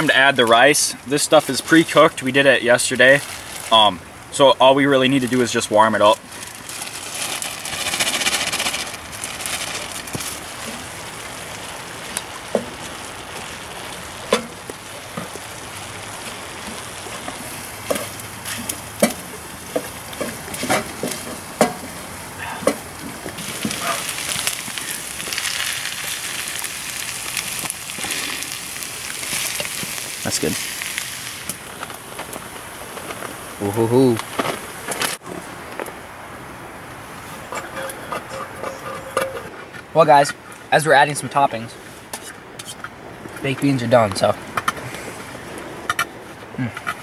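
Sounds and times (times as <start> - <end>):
food sizzling in a pan: 23.4 - 31.8.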